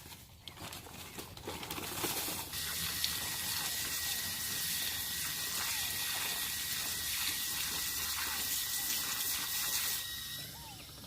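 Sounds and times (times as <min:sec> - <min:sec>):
water running: 0:02.5 - 0:10.2.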